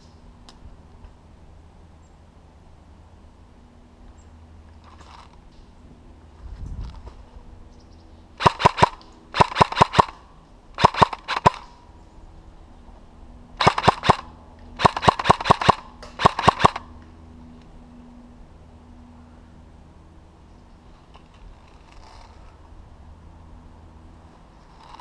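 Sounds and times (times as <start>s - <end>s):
airsoft gun firing bursts: 8.4s - 10.2s, 10.8s - 11.7s, 13.6s - 16.9s.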